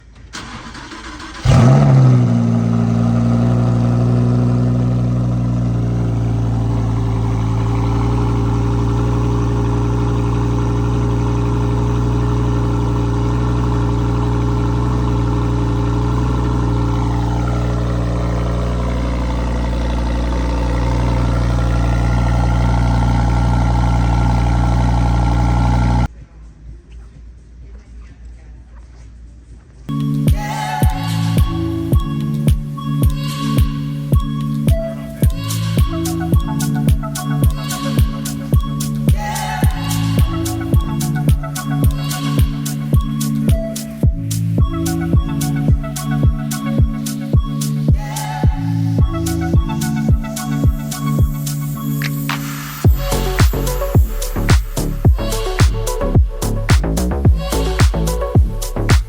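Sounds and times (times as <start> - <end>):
car engine starting and idling: 0.0 - 26.1, 33.6 - 43.4, 48.1 - 59.0.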